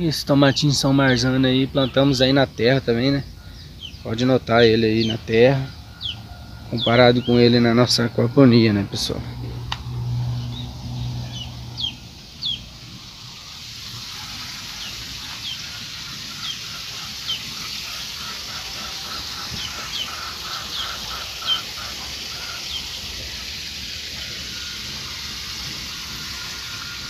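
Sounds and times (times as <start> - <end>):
birds chirping: 0.0 - 27.0
steady high hiss: 0.0 - 27.0.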